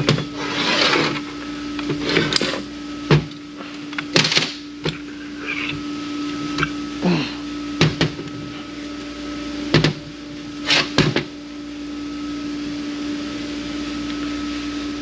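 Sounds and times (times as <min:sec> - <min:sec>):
metal parts scraping and clinking: 0:00.0 - 0:02.6, 0:04.9 - 0:05.8
steady hum: 0:00.0 - 0:15.0.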